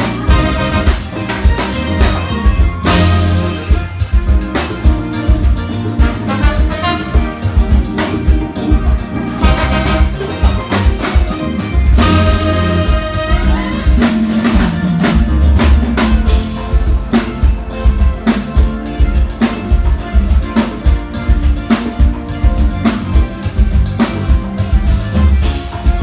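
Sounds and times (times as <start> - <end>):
drum kit beat: 0.0 - 26.0
live band playing: 0.0 - 26.0.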